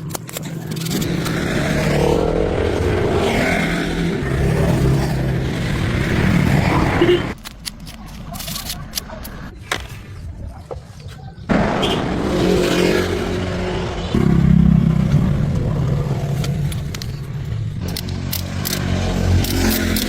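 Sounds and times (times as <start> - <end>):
sharp clicks and ticks: 0.0 - 6.6, 7.3 - 9.8, 15.0 - 20.0
car engine starting and running: 0.4 - 7.4.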